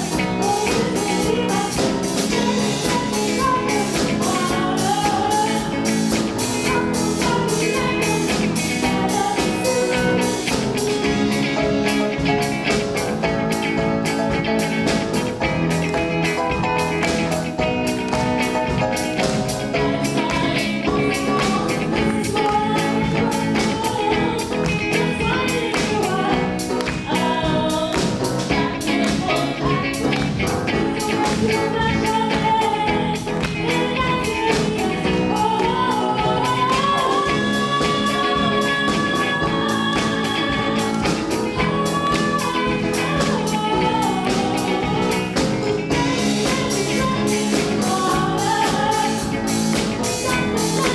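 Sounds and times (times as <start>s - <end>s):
song with lead vocal and band: 0.0s - 50.9s.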